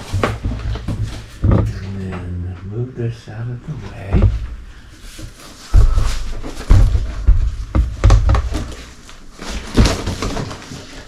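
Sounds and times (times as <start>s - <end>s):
heavy thumps of packaging: 0.0s - 2.0s, 4.0s - 11.0s
packaging handling noise: 5.1s - 11.0s.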